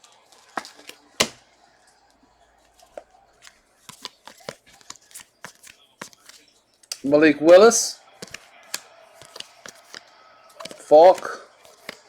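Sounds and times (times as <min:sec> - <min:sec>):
cards clicking and tapping: 0:00.0 - 0:12.0
trading card snap: 0:00.3 - 0:12.0.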